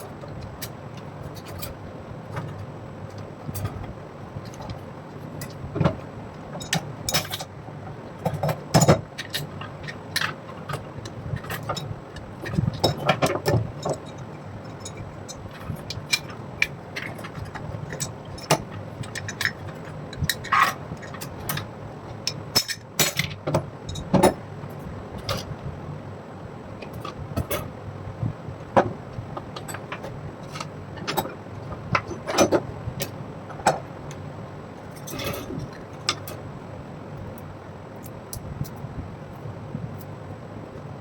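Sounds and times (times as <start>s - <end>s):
steady low hum: 0.0s - 41.0s
metal parts and tools clinking: 6.5s - 7.5s, 22.3s - 24.4s, 34.8s - 36.4s.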